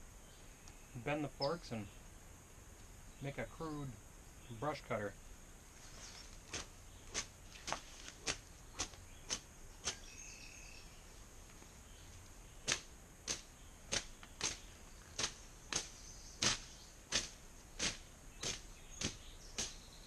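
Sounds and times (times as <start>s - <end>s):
high insect drone: 0.0s - 20.0s
brush cutter swishing through brush: 5.8s - 10.1s, 12.6s - 19.8s.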